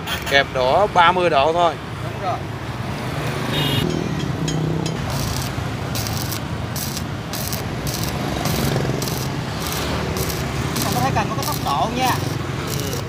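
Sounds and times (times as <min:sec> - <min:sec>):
welding arc crackling: 0:04.9 - 0:13.0.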